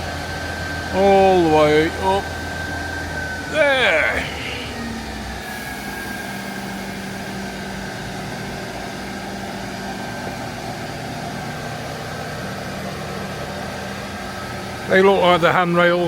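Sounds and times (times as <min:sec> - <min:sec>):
diesel engine droning: 0:00.0 - 0:08.2.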